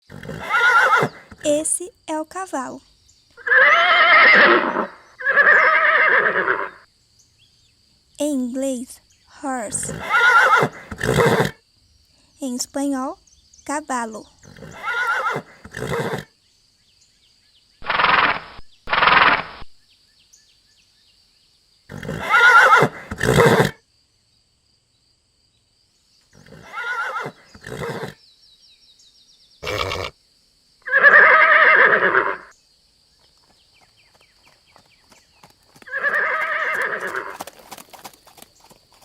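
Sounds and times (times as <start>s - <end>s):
horse neighing and whinnying: 0.1s - 1.5s, 3.4s - 6.8s, 9.7s - 11.6s, 14.4s - 16.3s, 17.8s - 19.6s, 21.9s - 23.8s, 26.4s - 28.2s, 29.6s - 30.2s, 30.8s - 32.5s, 35.9s - 37.5s.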